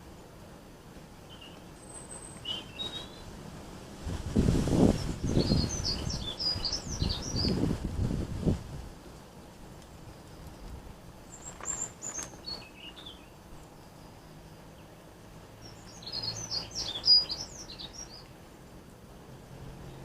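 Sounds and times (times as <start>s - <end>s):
songbird chirping: 1.2s - 3.4s, 4.8s - 7.8s, 9.2s - 20.0s.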